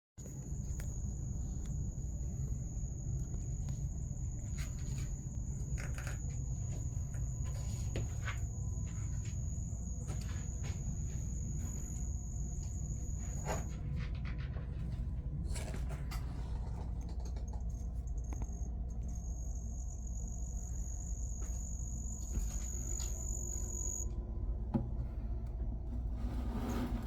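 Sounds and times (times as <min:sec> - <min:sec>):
cricket chirping trill: 0:00.2 - 0:14.3, 0:16.8 - 0:24.7
steady low rumble: 0:00.2 - 0:27.0.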